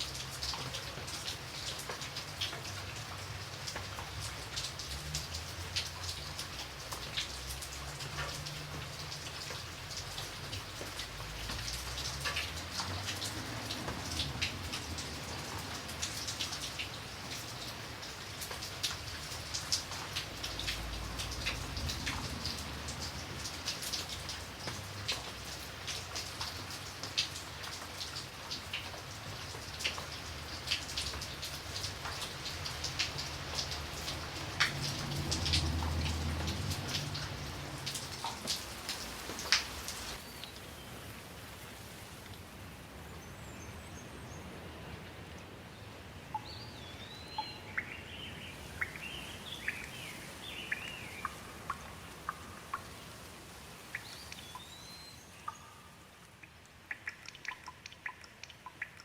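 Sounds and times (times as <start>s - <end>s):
rain drops ticking: 0.0s - 59.0s.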